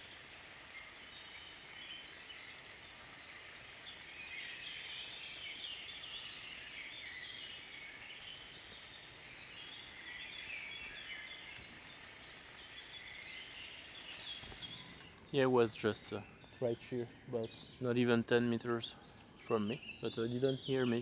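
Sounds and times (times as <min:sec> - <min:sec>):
faint steady hiss: 0:00.0 - 0:21.0
small birds chirping and trilling: 0:00.0 - 0:21.0.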